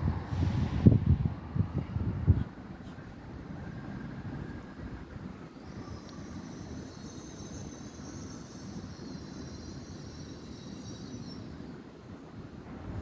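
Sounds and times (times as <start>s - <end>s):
train rumbling: 0.0s - 13.0s
high multi-tone whine: 3.6s - 11.9s.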